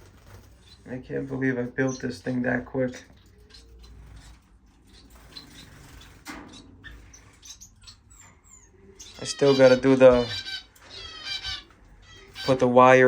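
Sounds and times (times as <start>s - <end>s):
wings rustling and fluttering: 0.0s - 8.4s
finches chirping: 0.0s - 13.0s.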